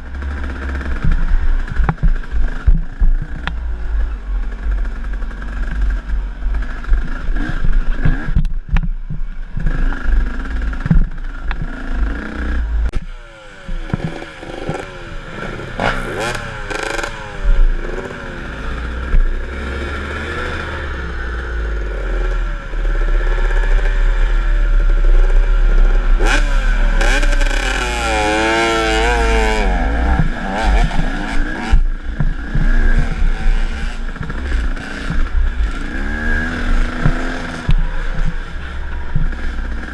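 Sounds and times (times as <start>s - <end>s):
wind rumble on microphone: 0.0s - 13.1s
dirt bike engine revving: 0.0s - 39.9s.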